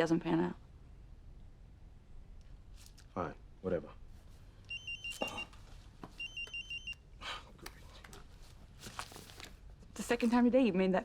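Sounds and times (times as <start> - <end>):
mobile phone ringing beeps: 4.7 - 5.5, 6.2 - 7.0.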